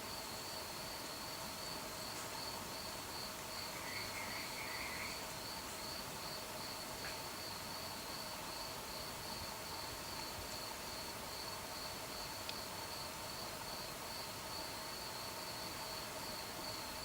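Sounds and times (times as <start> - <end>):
crickets chirping: 0.1 - 17.0.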